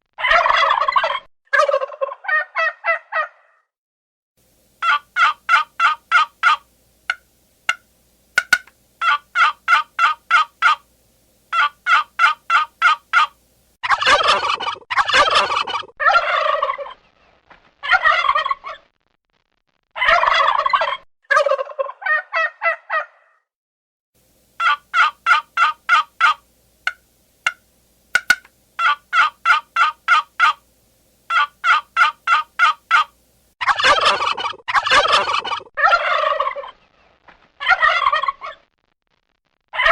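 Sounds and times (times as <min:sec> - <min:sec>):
rattling turkey gobbles: 0:04.8 - 0:10.9, 0:11.5 - 0:17.0, 0:20.0 - 0:22.5, 0:24.6 - 0:27.6, 0:28.2 - 0:30.6, 0:31.3 - 0:36.8
turkey call rapid notes: 0:04.8 - 0:10.9, 0:11.5 - 0:13.4, 0:24.6 - 0:27.6, 0:28.2 - 0:30.6, 0:31.3 - 0:33.2.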